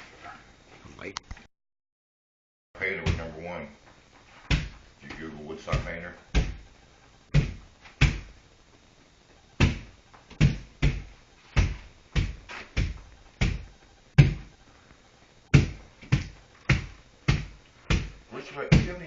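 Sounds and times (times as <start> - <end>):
dull thuds: 3.0 - 3.4, 4.4 - 8.4, 9.5 - 14.6, 15.5 - 19.0.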